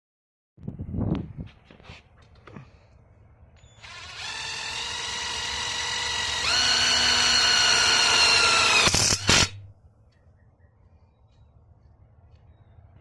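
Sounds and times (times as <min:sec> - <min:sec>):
impact wrench motor whine: 0:03.8 - 0:09.5.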